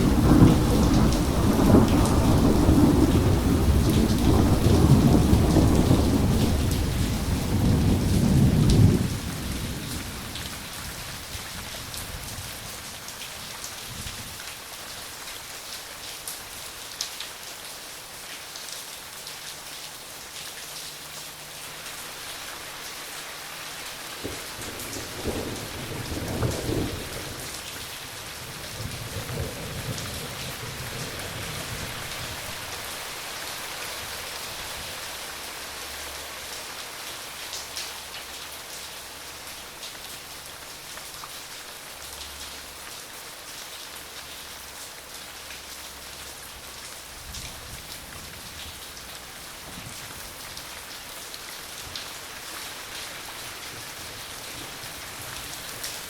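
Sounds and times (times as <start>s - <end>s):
thunder rumbling: 0.0s - 10.2s, 24.2s - 27.6s
rain falling: 0.0s - 56.0s.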